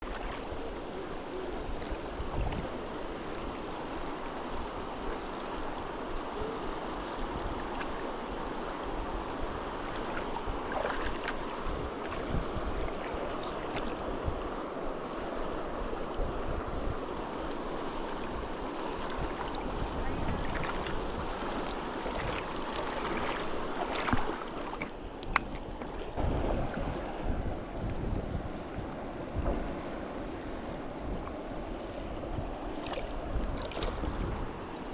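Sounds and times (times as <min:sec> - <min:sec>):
wind rumbling on microphone: 0:00.0 - 0:34.9
fast-flowing river rushing: 0:00.1 - 0:27.8.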